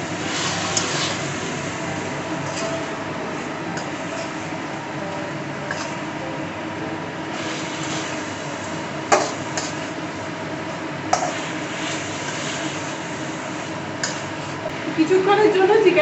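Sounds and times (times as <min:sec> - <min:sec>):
chicken sizzling in a pan: 0:00.0 - 0:04.4, 0:07.3 - 0:14.6.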